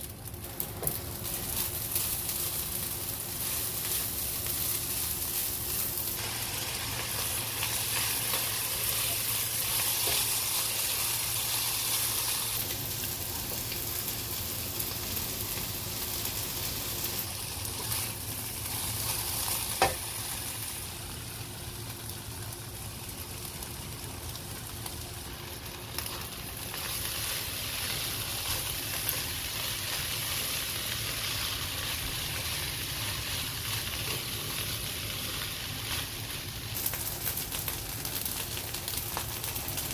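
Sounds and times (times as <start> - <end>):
rice sizzling in a wok: 0.0 - 39.9.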